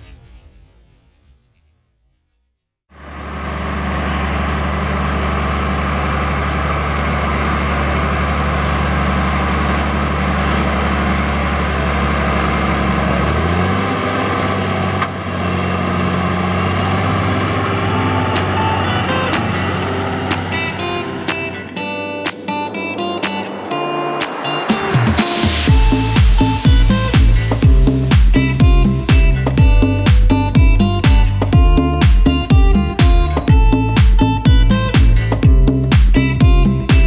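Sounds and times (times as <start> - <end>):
tractor diesel engine running: 2.9 - 37.0.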